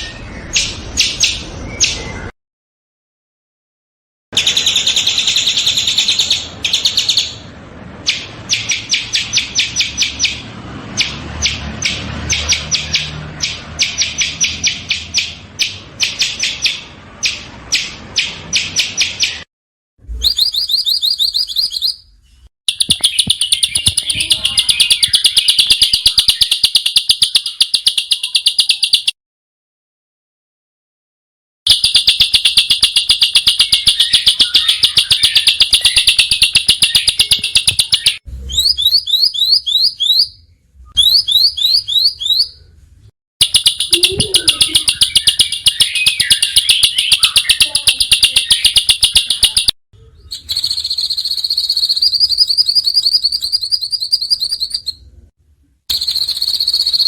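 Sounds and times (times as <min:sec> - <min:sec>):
songbirds chirping: 0:20.4 - 0:29.0, 0:43.4 - 0:55.1.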